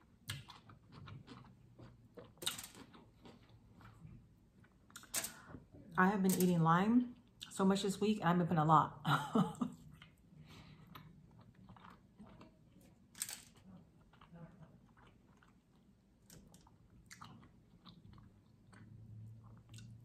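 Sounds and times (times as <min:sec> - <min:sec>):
person chewing food: 0:00.0 - 0:05.2, 0:09.8 - 0:20.0.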